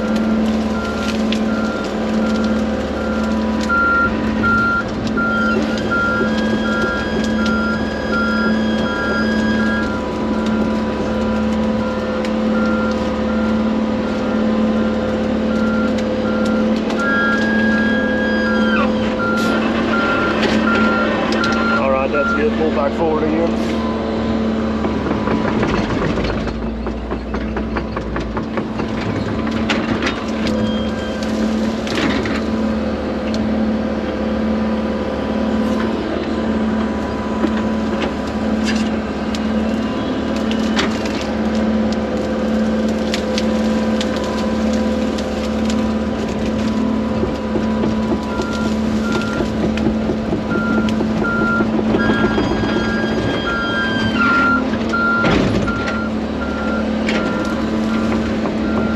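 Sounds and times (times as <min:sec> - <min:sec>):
wood cracking and snapping: 0:00.0 - 0:22.2, 0:24.6 - 0:33.5, 0:36.7 - 0:58.9
reversing alarm beeping: 0:00.0 - 0:24.1, 0:30.5 - 0:31.5, 0:46.8 - 0:49.7, 0:50.5 - 0:58.9
diesel excavator running: 0:00.0 - 0:58.9.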